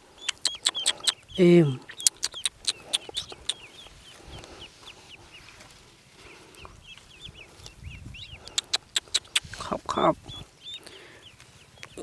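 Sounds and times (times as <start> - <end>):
ducklings peeping: 0.0 - 12.0
sharp clicks: 0.2 - 1.2, 2.0 - 3.6, 8.5 - 9.5.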